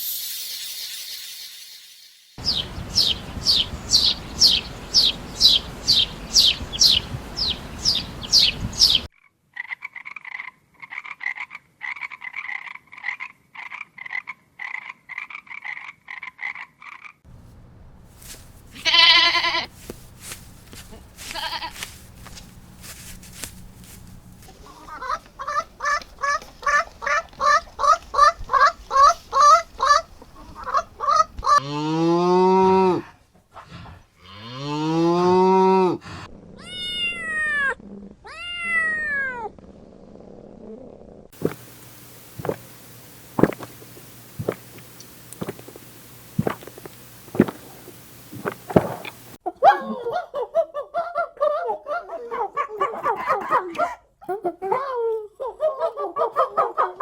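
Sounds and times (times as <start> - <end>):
wavering bleat-like calls: 18.8 - 19.8, 20.9 - 22.0
fast rising animal calls: 24.4 - 31.6.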